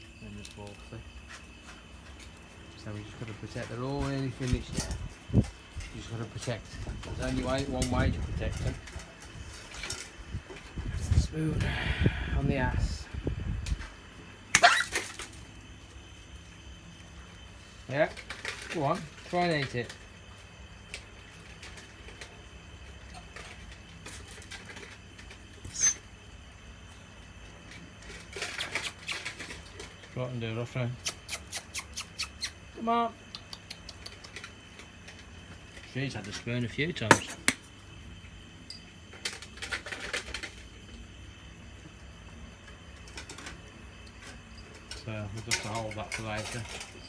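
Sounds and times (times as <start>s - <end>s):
sharp knock with squeak: 14.6s - 14.9s, 25.6s - 26.0s, 37.1s - 37.6s
dogs eating from bowls: 20.9s - 26.0s, 27.6s - 30.6s, 42.6s - 47.0s.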